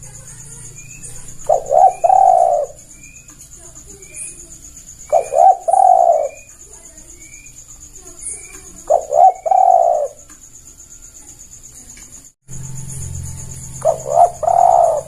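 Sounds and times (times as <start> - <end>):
dove cooing: 0.0 - 10.3, 13.7 - 15.0
high bird chirps: 0.0 - 15.0.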